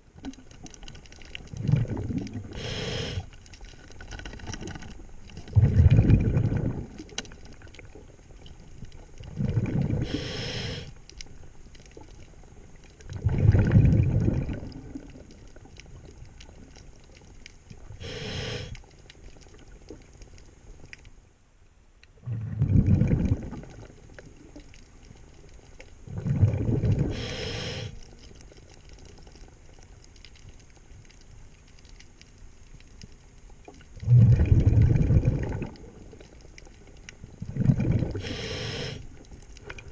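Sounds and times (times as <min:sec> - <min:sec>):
exhaled bubbles rushing underwater: 0:01.4 - 0:03.2, 0:05.3 - 0:08.0, 0:09.1 - 0:10.5, 0:13.0 - 0:16.6, 0:22.2 - 0:24.7, 0:26.0 - 0:27.8, 0:33.8 - 0:36.6, 0:37.2 - 0:38.9
regulator inhale hiss: 0:02.4 - 0:03.4, 0:09.8 - 0:11.0, 0:17.9 - 0:18.9, 0:27.0 - 0:28.1, 0:38.1 - 0:39.2.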